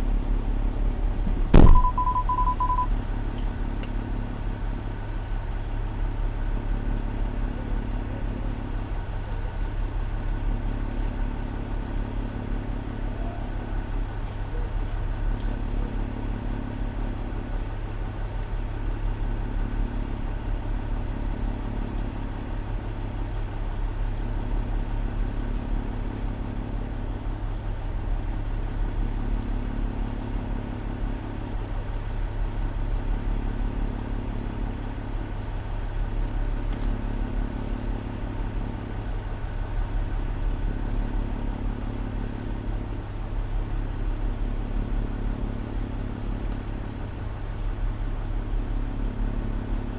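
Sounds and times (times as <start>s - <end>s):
fire engine idling: 0.0s - 49.9s.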